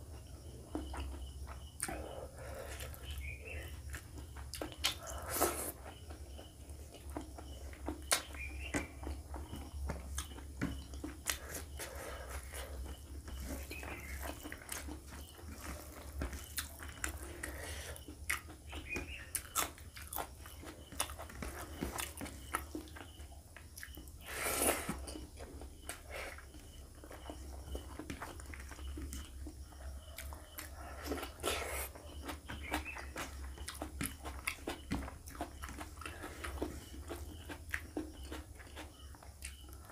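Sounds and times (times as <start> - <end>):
wet chewing and lip smacking: 0.2 - 24.3, 24.9 - 39.9.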